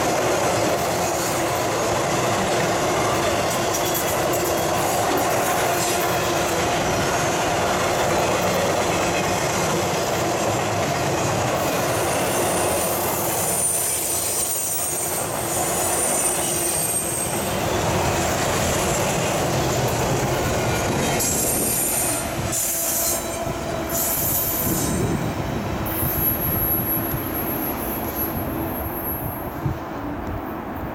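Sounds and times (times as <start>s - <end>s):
high wheel squeals: 11.6s - 19.4s, 21.2s - 29.5s.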